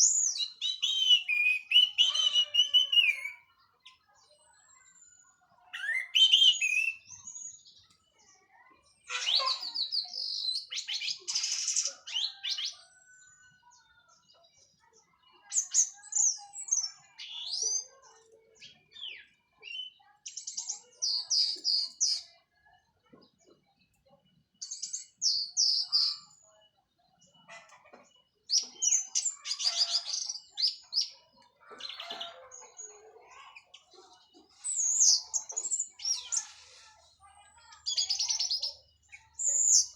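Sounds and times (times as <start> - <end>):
thrush singing trills and whistles: 0.4 - 3.5, 5.8 - 7.0.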